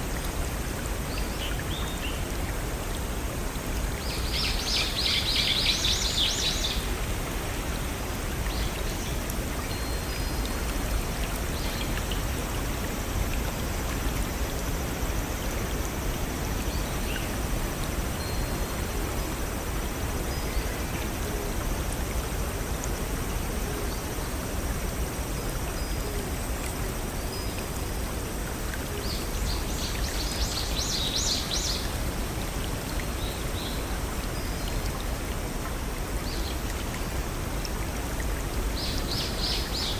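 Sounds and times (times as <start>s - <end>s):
stream rushing over waterfalls: 26.4s - 39.9s.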